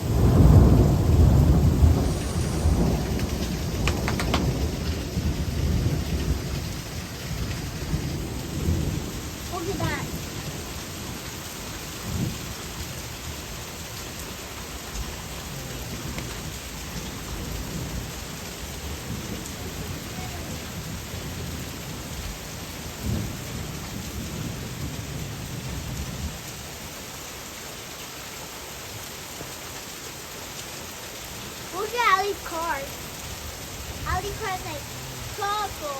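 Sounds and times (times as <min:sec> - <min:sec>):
thunder rolling: 0:00.0 - 0:10.6
steady rain hiss: 0:00.0 - 0:35.9.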